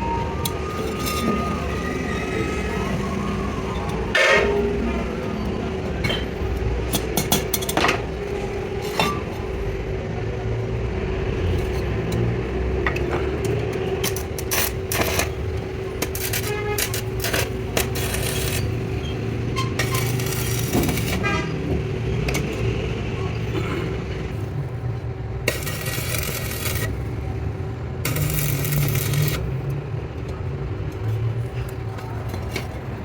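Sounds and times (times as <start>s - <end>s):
machine hum and rumble: 0.0s - 33.0s
metal tools clinking and scraping: 8.8s - 9.4s, 12.9s - 21.4s.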